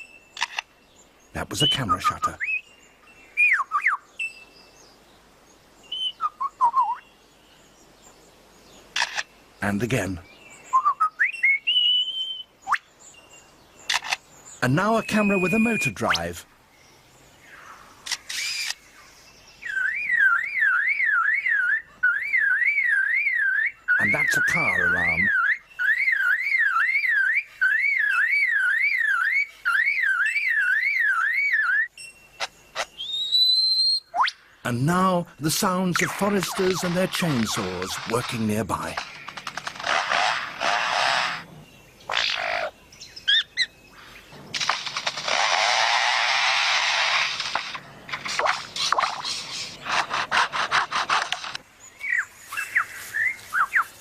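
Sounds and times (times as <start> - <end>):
bird mimicking car alarm: 19.7 - 34.4
lyrebird mimicking chainsaws: 35.4 - 41.5, 42.1 - 51.6.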